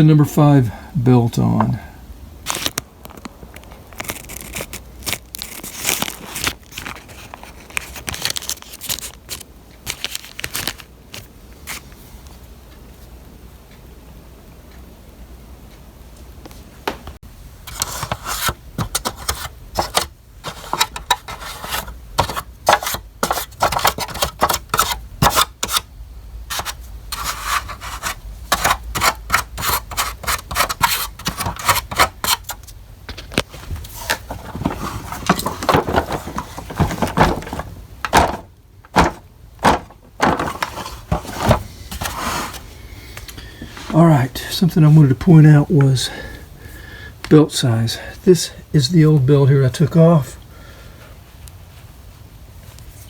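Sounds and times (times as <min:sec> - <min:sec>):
scraping and rubbing on brush roller: 0:17.7 - 0:25.8, 0:26.5 - 0:32.7, 0:33.5 - 0:42.7.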